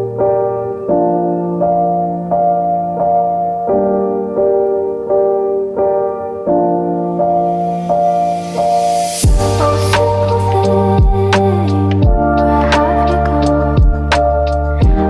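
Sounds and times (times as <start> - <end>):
slow piano melody: 0.0 - 15.0.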